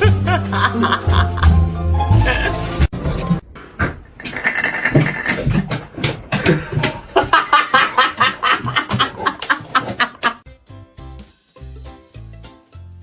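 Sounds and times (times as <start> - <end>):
person laughing hard: 0.0 - 2.8, 6.4 - 10.4.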